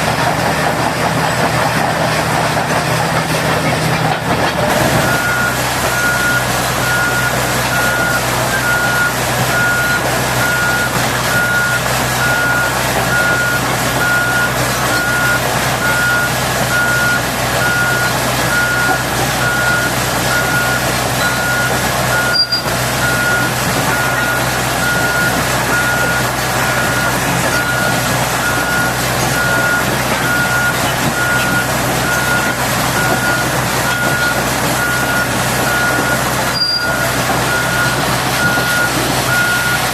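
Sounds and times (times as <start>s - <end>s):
diesel engine humming: 0.0s - 39.9s
reversing alarm beeping: 5.0s - 39.9s.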